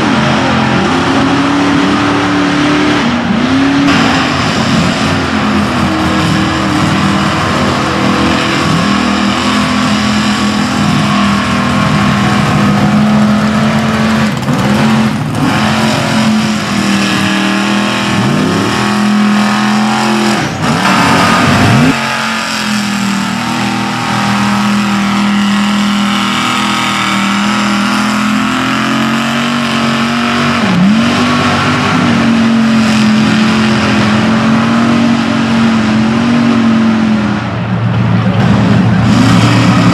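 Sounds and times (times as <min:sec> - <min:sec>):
truck engine at high revs: 0:00.0 - 0:39.9.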